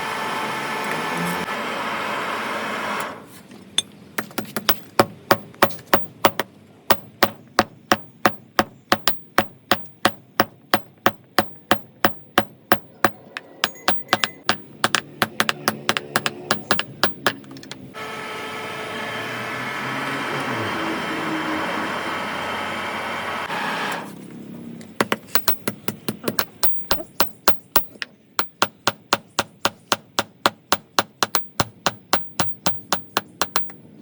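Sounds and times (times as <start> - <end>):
steady machine noise: 0.0 - 3.0, 11.3 - 24.0.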